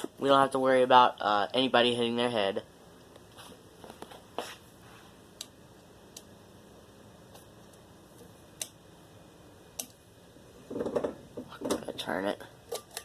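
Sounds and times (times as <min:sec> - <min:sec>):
ceiling fan humming: 0:00.0 - 0:13.0
fan ticking: 0:05.3 - 0:06.5, 0:07.3 - 0:09.0, 0:09.6 - 0:10.1.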